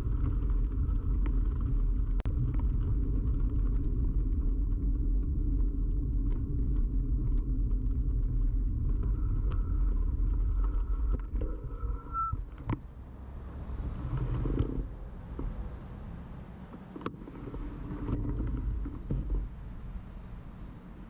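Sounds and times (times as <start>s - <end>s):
bicycle tyre rumble: 0.0s - 21.0s
thin high whine: 9.1s - 12.5s.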